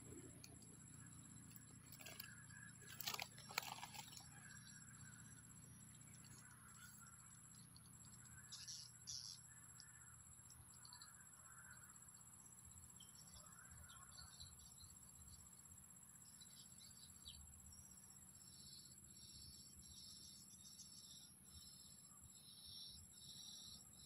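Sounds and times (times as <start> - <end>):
pulsing insect trill: 0.0 - 24.0
short rustles and clicks: 1.5 - 4.3.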